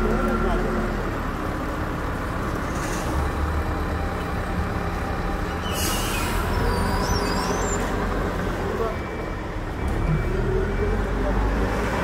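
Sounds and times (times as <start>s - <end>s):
diesel engine running: 0.0s - 11.7s
wavering high squeal: 5.6s - 7.9s.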